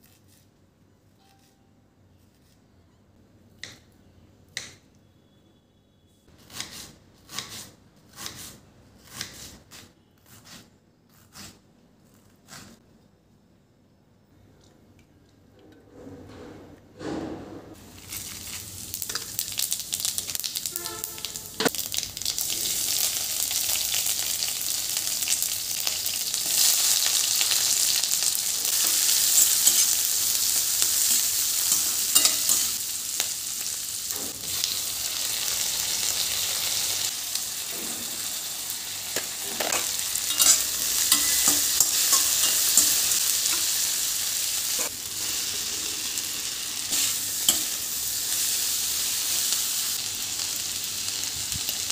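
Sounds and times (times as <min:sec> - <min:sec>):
food sizzling in oil: 0:17.8 - 0:51.9
spatula scraping a pan: 0:28.6 - 0:32.8, 0:39.4 - 0:43.9.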